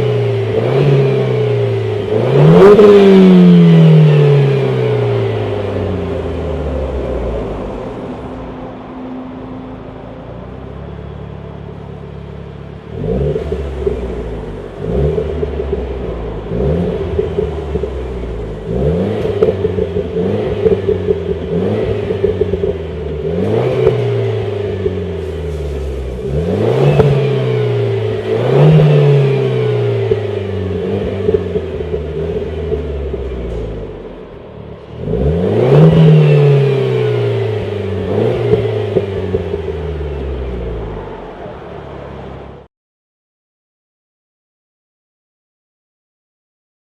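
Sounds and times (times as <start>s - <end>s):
car engine revving: 0.0s - 42.7s
exhaust pops: 13.4s - 30.4s, 31.0s - 41.0s.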